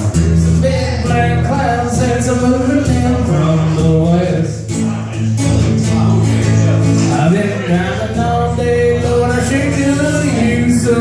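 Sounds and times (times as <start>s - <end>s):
man singing: 0.0s - 11.0s
strummed acoustic guitar: 0.0s - 11.0s.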